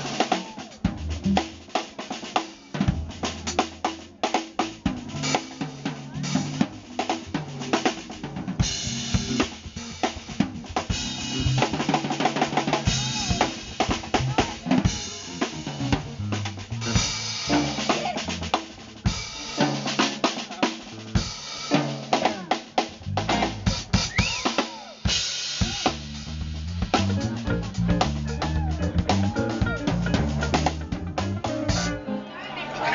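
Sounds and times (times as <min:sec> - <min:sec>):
drum kit solo: 0:00.0 - 0:32.9.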